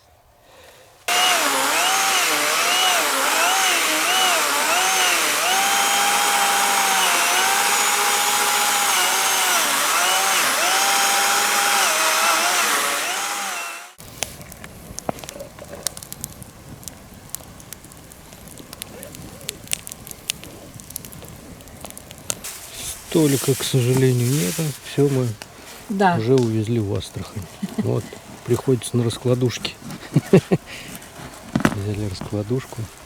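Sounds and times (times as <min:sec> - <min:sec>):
chainsaw cutting log: 0:01.1 - 0:14.1, 0:22.4 - 0:33.0
campfire crackling and popping: 0:14.0 - 0:33.0.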